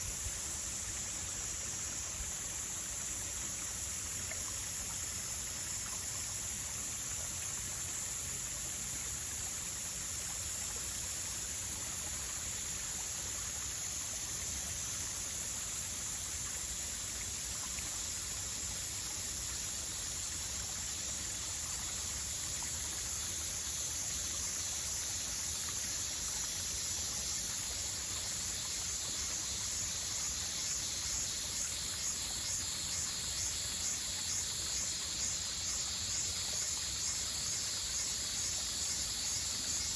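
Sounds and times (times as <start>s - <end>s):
high-pitched insect chorus: 0.0s - 39.9s
insect pulsing call: 0.0s - 39.9s.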